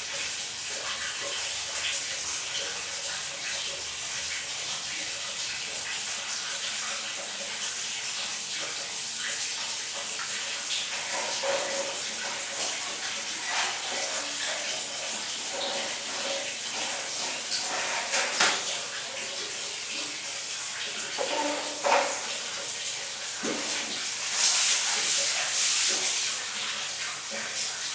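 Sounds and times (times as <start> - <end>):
water running: 0.0 - 27.9.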